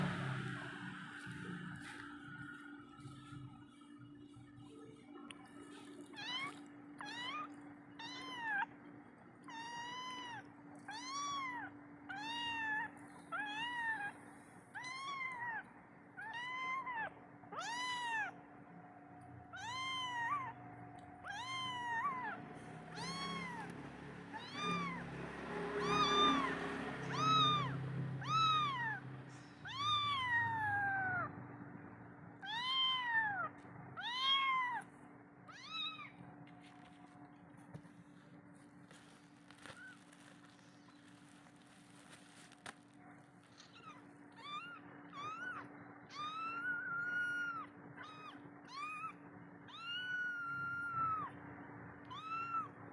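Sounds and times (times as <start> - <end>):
kitten mewing: 9.4 - 18.4, 19.5 - 20.5, 21.2 - 25.1, 25.7 - 29.0, 29.6 - 31.3, 32.4 - 34.9, 43.5 - 51.3.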